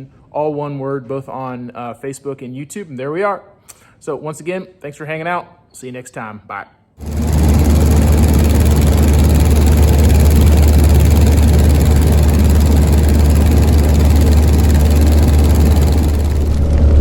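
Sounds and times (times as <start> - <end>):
loud engine rumble: 7.0 - 17.0.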